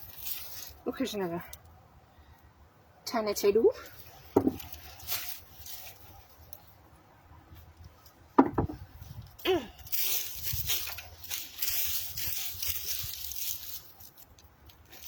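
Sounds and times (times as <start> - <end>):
dirt scraping and rustling: 0.0 - 1.6, 3.8 - 6.9, 8.8 - 15.0
hands digging in soil: 3.9 - 6.6, 9.6 - 15.0.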